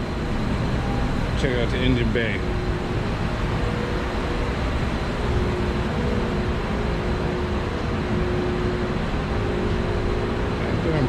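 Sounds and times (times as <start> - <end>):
faint steady hum: 0.0 - 11.0
low rumbling noise: 0.0 - 11.0.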